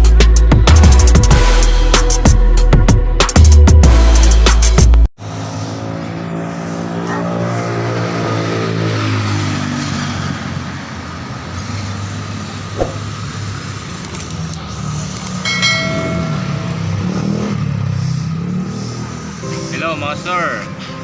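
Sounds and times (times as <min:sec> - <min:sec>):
vehicle engine running: 0:12.7 - 0:19.6.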